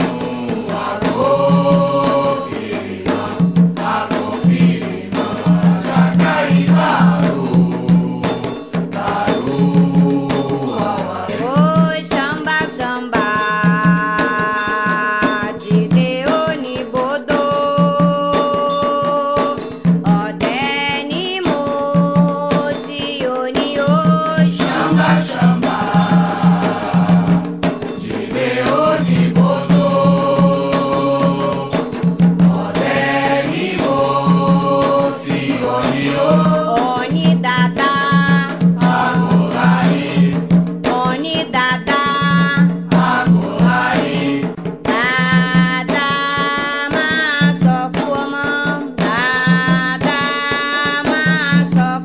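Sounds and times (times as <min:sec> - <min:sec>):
voices singing long notes: 0:00.0 - 0:08.4, 0:32.5 - 0:37.2
drums and percussion beat: 0:00.0 - 0:52.0
voices singing a chant: 0:00.0 - 0:52.0.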